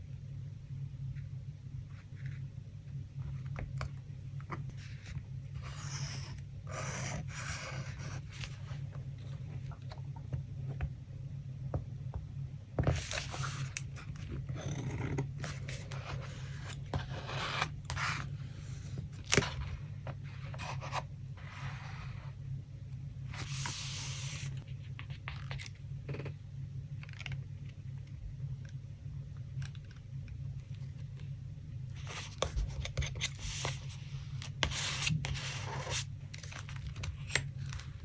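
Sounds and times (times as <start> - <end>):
low steady hum: 0.0 - 38.0
paper rustling and scraping: 12.8 - 22.2, 23.3 - 25.6.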